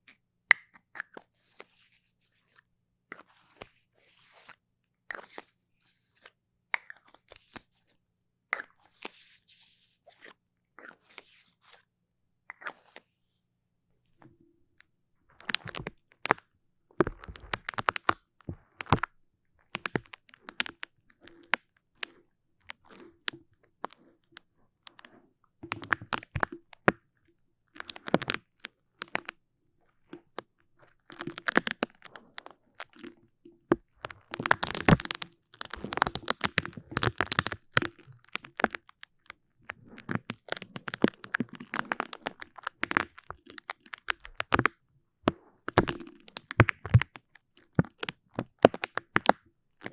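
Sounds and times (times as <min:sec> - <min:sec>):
sticky surface crackling and peeling: 0:15.4 - 0:16.4, 0:17.0 - 0:18.2, 0:19.8 - 0:20.8, 0:27.8 - 0:29.3, 0:30.9 - 0:33.2, 0:34.0 - 0:44.7, 0:45.7 - 0:49.9.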